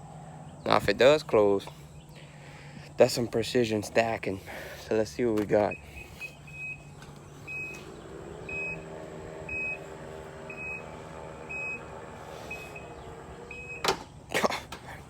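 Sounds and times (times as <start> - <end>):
liftgate motor running: 5.4 - 15.0
liftgate warning beeper: 5.6 - 14.0.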